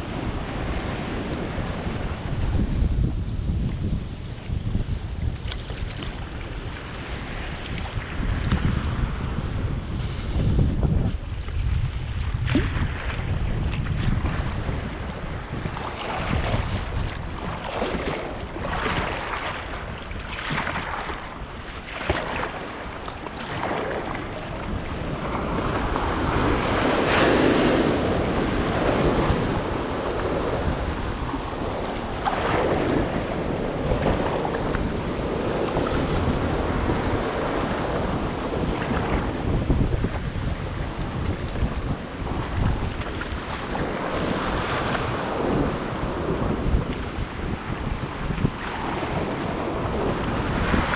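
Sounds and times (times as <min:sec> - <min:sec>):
wind buffeting microphone: 0:00.0 - 0:50.9
water splashing against kayak: 0:03.6 - 0:50.9
surf surging: 0:14.1 - 0:50.9.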